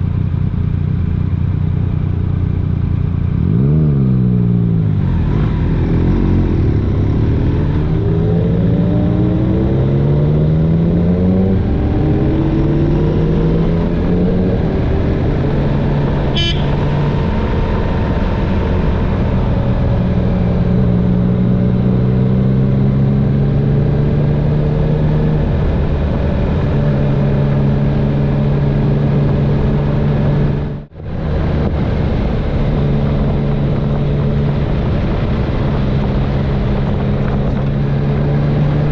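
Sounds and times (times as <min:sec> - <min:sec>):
motorcycle engine revving: 0:00.0 - 0:38.9
wind rush: 0:25.4 - 0:38.9.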